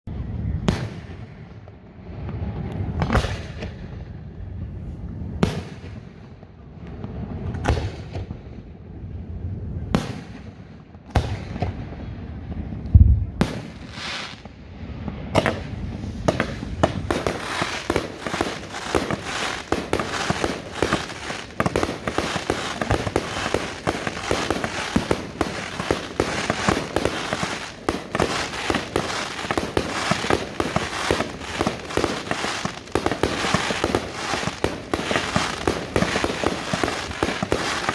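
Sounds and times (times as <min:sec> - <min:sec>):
fireworks rapid bangs and crackling: 0:00.2 - 0:08.8, 0:09.4 - 0:37.9
firework shell bursts: 0:15.4 - 0:37.9.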